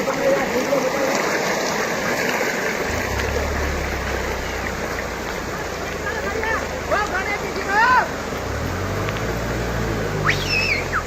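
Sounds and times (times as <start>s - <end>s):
water and mud rushing: 0.0s - 11.0s
low hum: 2.9s - 7.0s.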